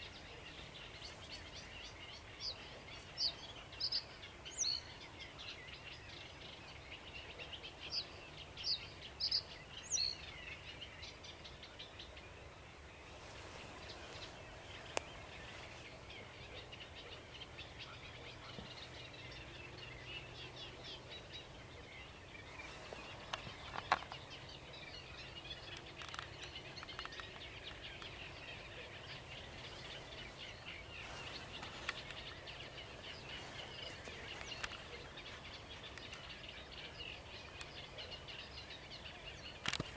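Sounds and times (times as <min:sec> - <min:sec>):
warbler singing rapid notes: 0:13.8 - 0:39.9.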